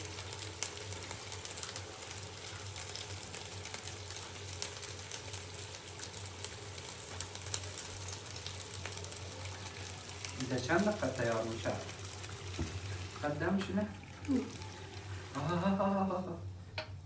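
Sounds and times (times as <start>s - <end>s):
food sizzling in hot oil: 0.0s - 16.2s.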